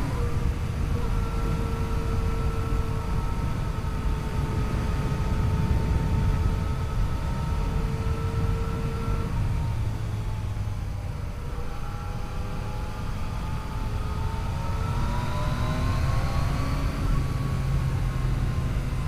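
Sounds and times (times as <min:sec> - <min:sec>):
rushing wind noise: 0:00.0 - 0:11.1.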